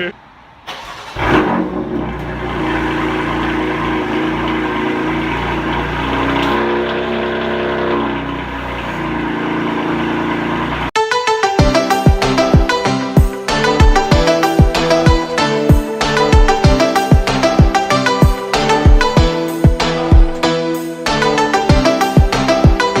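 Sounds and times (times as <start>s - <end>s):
car engine running: 0.9s - 11.0s
music with sharp beat: 11.0s - 23.0s.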